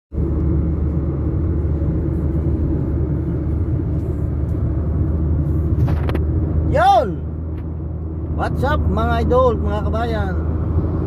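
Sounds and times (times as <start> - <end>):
car engine and road noise: 0.1 - 11.0.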